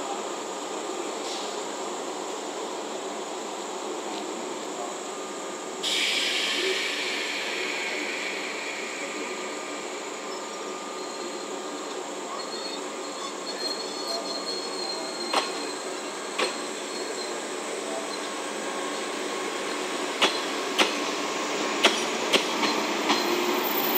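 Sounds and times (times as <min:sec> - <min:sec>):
electric train running rumble: 0:00.0 - 0:23.9
faint high wheel squeal: 0:05.1 - 0:20.6, 0:22.5 - 0:23.9
hiss of air: 0:05.8 - 0:11.4.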